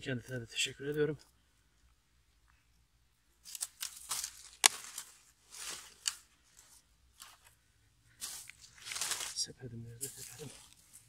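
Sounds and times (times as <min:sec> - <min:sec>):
mushrooms tearing and crackling: 0:03.4 - 0:06.3, 0:08.2 - 0:09.4.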